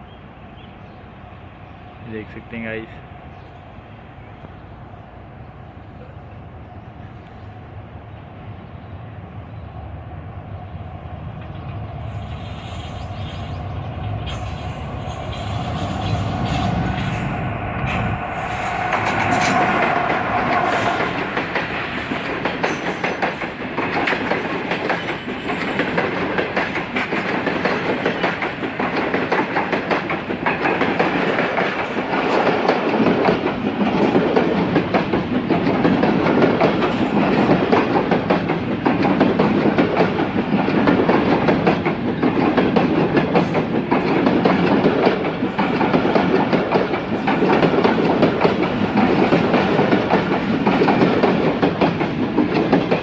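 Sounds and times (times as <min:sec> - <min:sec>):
train wheels clattering over rail joints: 0:11.4 - 0:53.0.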